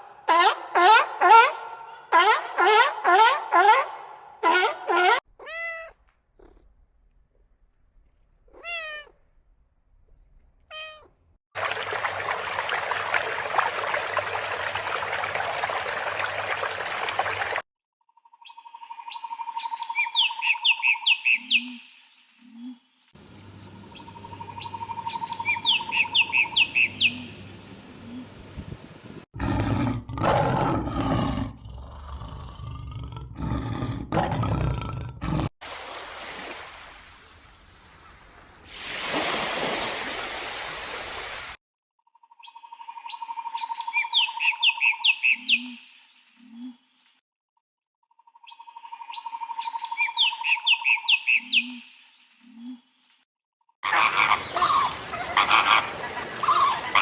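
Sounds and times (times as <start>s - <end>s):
rough animal calls: 53.8s - 57.0s.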